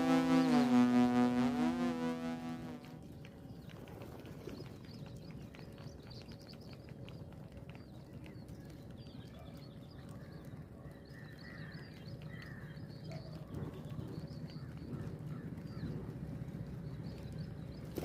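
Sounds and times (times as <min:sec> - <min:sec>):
small birds chirping: 0:03.0 - 0:18.0.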